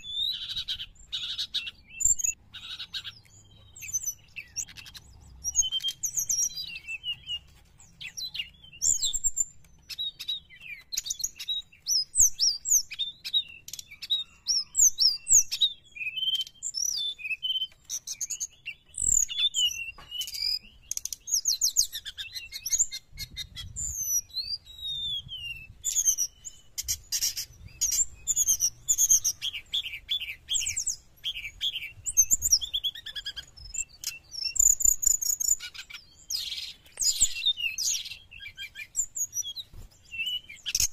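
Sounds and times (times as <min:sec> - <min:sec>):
bird singing chirps and trills: 0:00.0 - 0:40.9.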